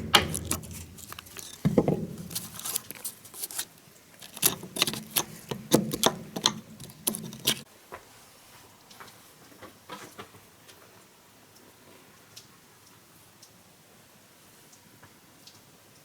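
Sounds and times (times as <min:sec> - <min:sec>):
sharp knocks and clicks: 0:00.0 - 0:02.8.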